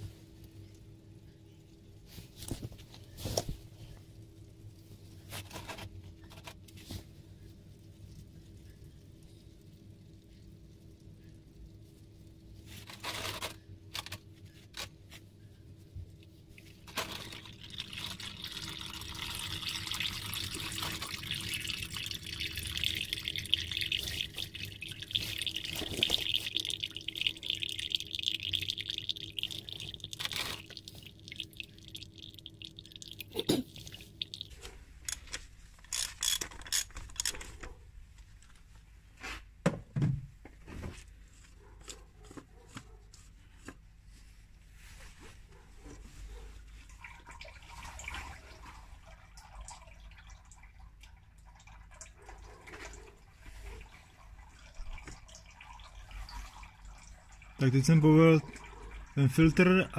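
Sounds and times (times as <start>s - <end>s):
oil pouring into plastic canister: 16.7s - 34.6s.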